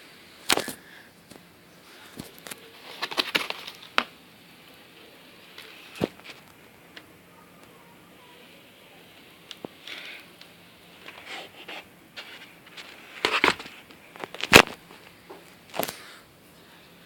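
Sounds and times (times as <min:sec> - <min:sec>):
handling scrapes rustles and clicks: 0:00.5 - 0:04.1, 0:09.5 - 0:16.0.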